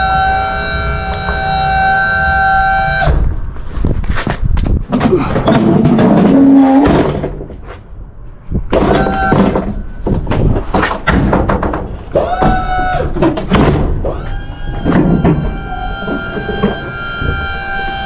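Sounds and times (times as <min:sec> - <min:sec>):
knocks and thuds: 0:04.2 - 0:07.7, 0:08.6 - 0:14.2.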